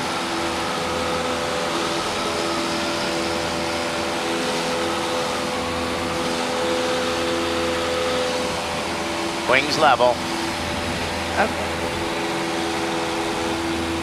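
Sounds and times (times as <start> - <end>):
light aircraft engine and propeller: 0.0 - 14.0.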